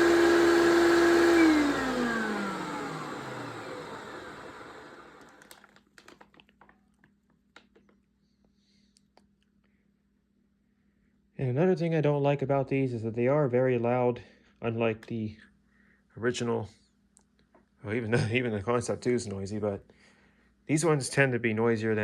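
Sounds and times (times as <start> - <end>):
vacuum cleaner motor whining: 0.0 - 6.2.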